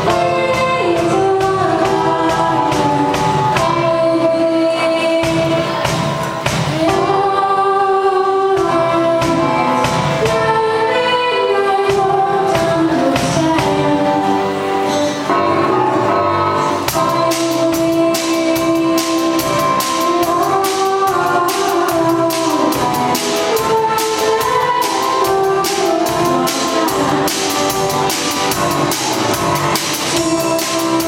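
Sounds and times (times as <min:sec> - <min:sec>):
girl singing: 0:00.0 - 0:06.0, 0:06.7 - 0:14.4, 0:16.8 - 0:31.0
musical backing track: 0:00.0 - 0:31.0
percussive beat: 0:16.9 - 0:31.0.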